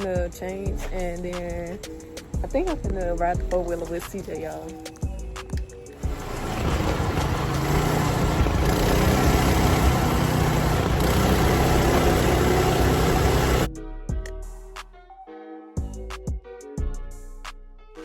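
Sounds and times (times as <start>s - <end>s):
atv engine running: 5.2s - 13.7s.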